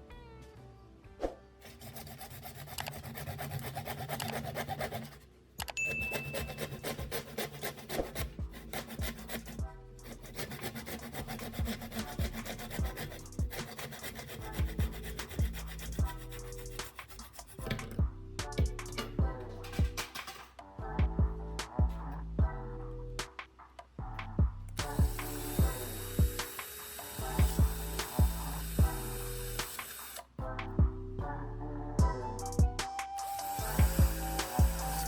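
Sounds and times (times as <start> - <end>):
soft background music: 0.0 - 35.0
hand tool rasping workpiece: 1.6 - 18.0, 24.8 - 30.2, 33.2 - 35.0
short high ding: 5.8 - 6.6.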